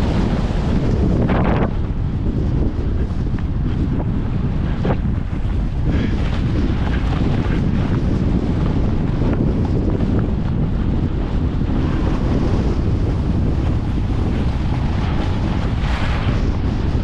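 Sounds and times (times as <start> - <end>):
skis scraping on snow: 0.0 - 1.7, 2.4 - 17.0
wind buffeting microphone: 0.0 - 17.0.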